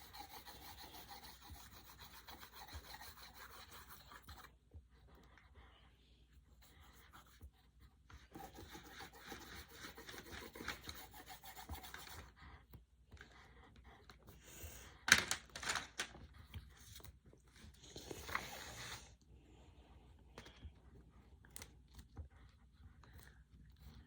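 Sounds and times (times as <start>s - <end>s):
sharp pencil scrape: 0.0s - 4.4s, 8.4s - 12.3s, 17.9s - 19.1s
pencil scribbling on paper: 0.0s - 4.6s, 6.4s - 12.7s.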